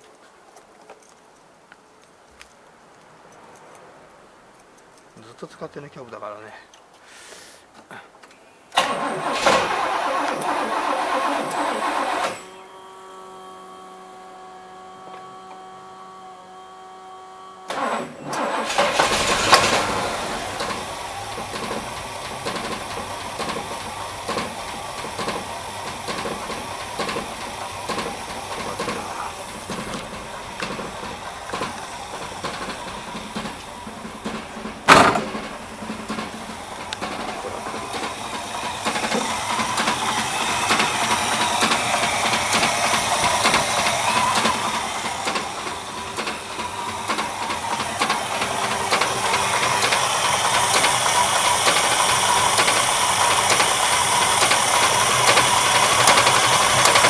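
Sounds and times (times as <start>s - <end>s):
car engine running with ticking: 18.7s - 57.0s.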